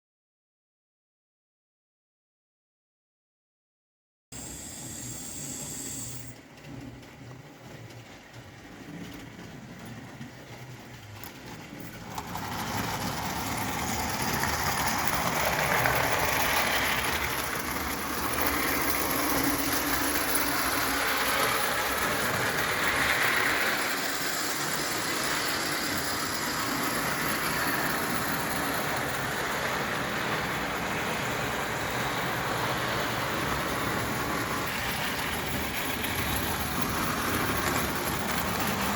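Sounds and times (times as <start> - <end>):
steam locomotive hissing steam: 4.4 - 6.4, 14.1 - 38.9.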